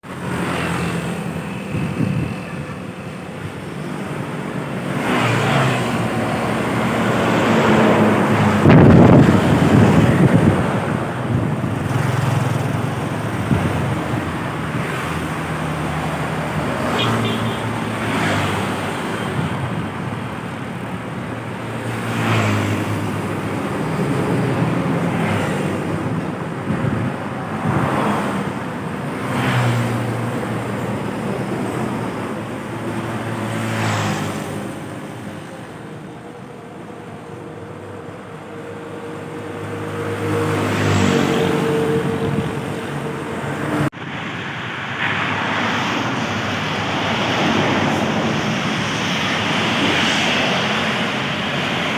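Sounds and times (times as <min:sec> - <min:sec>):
steady engine hum: 0:00.0 - 0:51.9
trucks and buses passing: 0:00.0 - 0:51.9.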